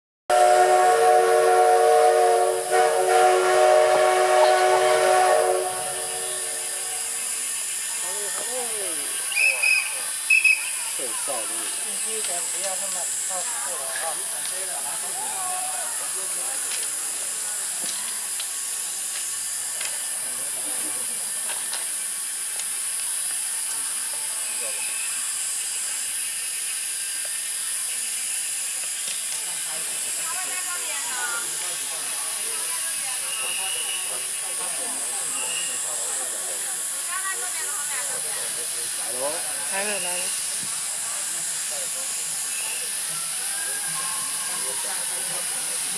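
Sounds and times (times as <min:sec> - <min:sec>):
steam whistle chord: 0:00.3 - 0:07.3
steam hissing: 0:00.3 - 0:45.9.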